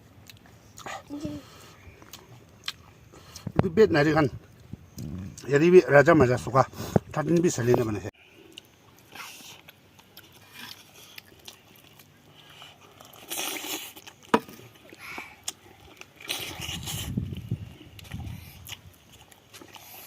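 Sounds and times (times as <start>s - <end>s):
person chewing and biting food: 2.0s - 3.5s, 8.4s - 20.0s.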